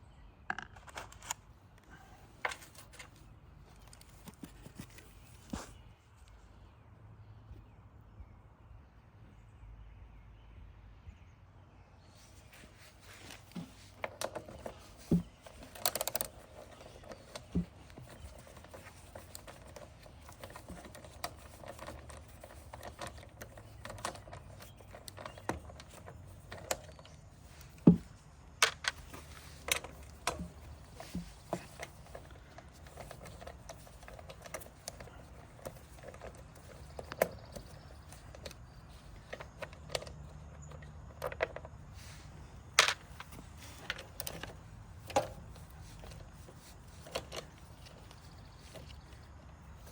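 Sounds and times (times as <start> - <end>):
hand tools clicking and knocking: 13.0 - 42.2, 42.8 - 49.9.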